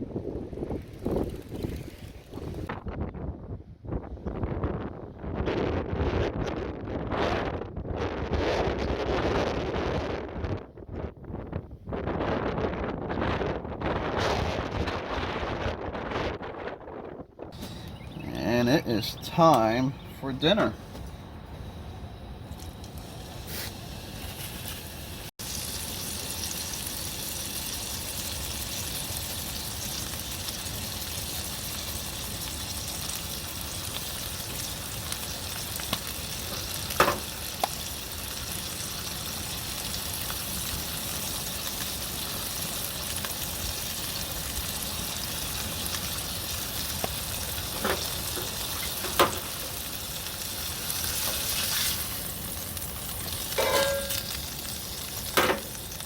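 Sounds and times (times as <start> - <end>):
food sizzling in a pan: 23.0 - 56.0.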